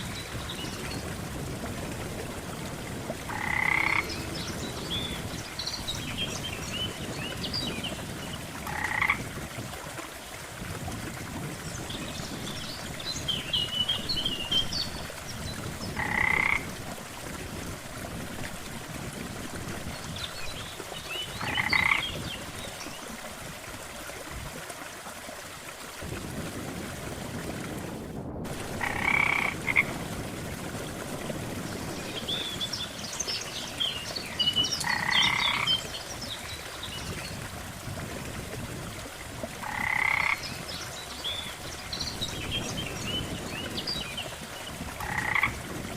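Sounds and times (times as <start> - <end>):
frogs croaking: 3.3 - 5.4, 8.6 - 9.3, 15.9 - 16.8, 21.3 - 22.5, 28.7 - 30.0, 34.5 - 36.1, 39.6 - 40.9, 45.0 - 45.7.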